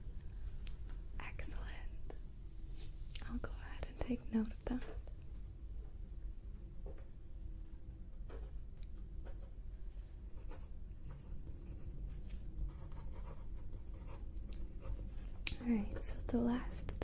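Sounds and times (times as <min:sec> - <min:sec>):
low steady hum: 0:00.0 - 0:17.0
pen scratching on paper: 0:12.7 - 0:15.2.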